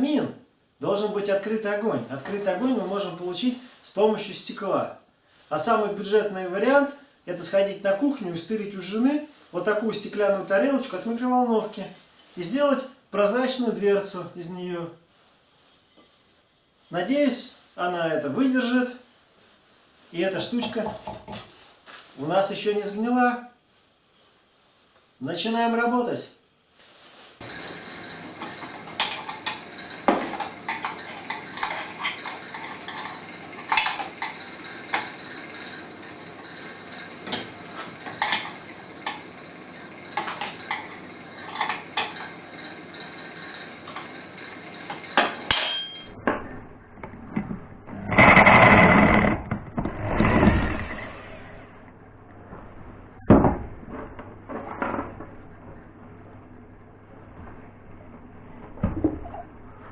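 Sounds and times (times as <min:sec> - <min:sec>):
hand tools knocking on metal: 0:27.4 - 0:46.2.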